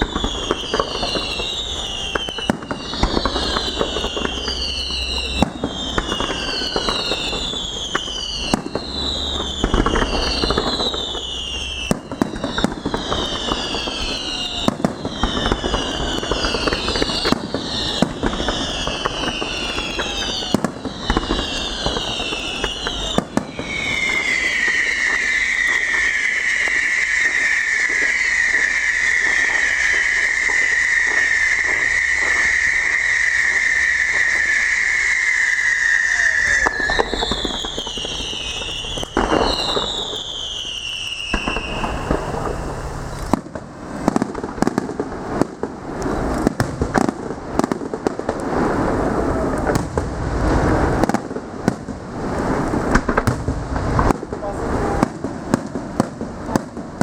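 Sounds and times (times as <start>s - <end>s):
long high whistle: 0.0s - 43.4s, 48.6s - 49.8s
falling firework whistles: 0.0s - 57.0s
fireworks crackling and banging: 0.0s - 57.0s.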